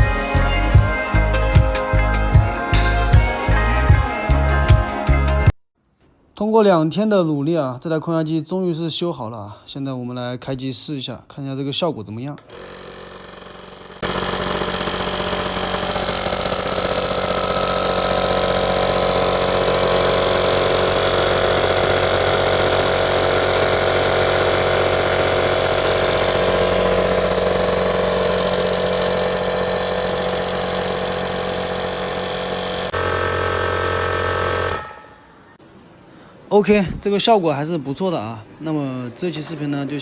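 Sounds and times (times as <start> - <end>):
air compressor running: 0.0 - 5.4, 12.5 - 35.7.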